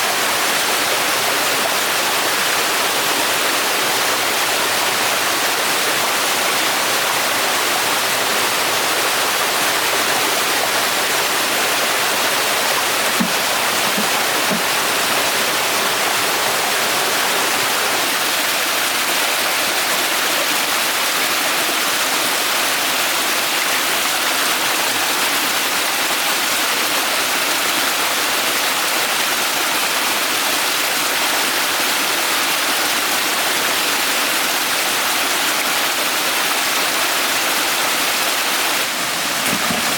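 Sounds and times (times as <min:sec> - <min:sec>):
rushing flowing water: 0:00.0 - 0:39.9
faint knocks: 0:13.1 - 0:14.8.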